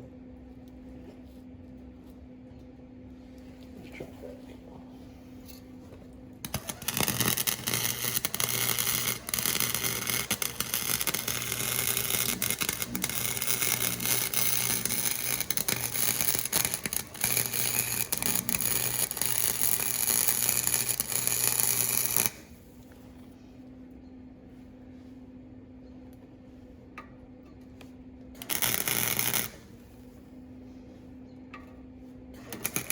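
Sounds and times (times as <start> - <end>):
electrical hum: 0.0 - 32.9
welding arc crackling: 6.4 - 22.8, 28.4 - 29.8, 32.4 - 32.9.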